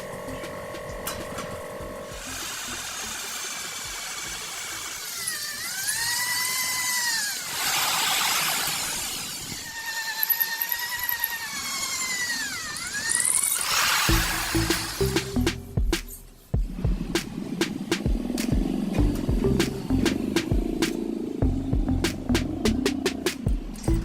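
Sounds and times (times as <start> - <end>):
power tool motor whining: 0.0 - 15.4.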